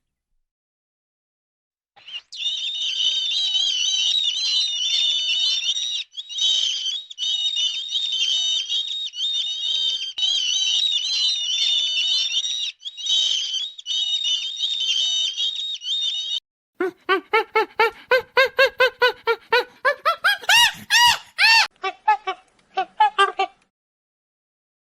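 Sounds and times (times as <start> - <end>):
small birds chirping: 2.0 - 21.7
animal rapid rising and falling calls: 12.2 - 21.7.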